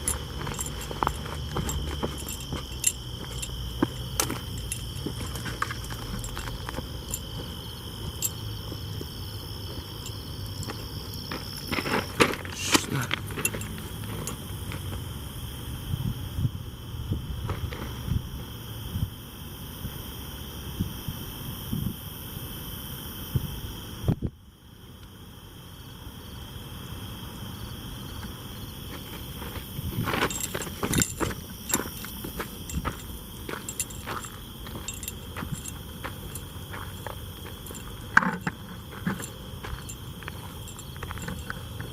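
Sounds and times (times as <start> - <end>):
footsteps: 0.0 - 15.0, 28.9 - 41.9
crickets chirring: 0.0 - 41.9.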